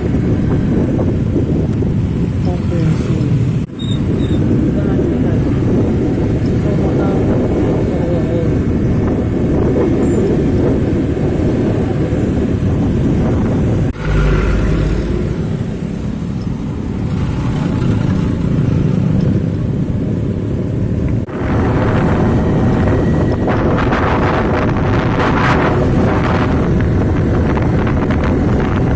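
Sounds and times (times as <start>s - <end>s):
heavy vehicle traffic rumble: 0.0s - 28.9s.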